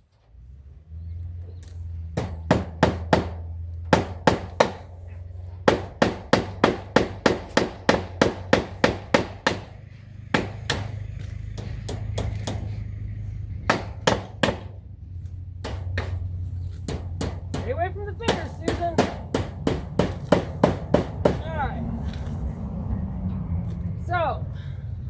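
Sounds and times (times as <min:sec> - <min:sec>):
steady low hum: 0:00.5 - 0:25.0
hammer driving nails into wood: 0:02.2 - 0:04.9, 0:05.6 - 0:12.8, 0:13.7 - 0:14.8, 0:15.6 - 0:16.2, 0:16.8 - 0:17.7, 0:18.3 - 0:21.4.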